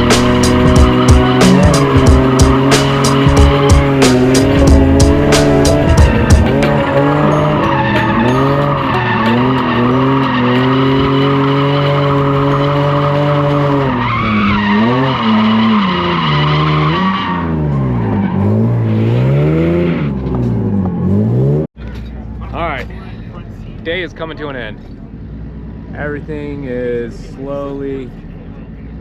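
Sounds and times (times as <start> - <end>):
car engine at high revs: 0.0 - 21.7.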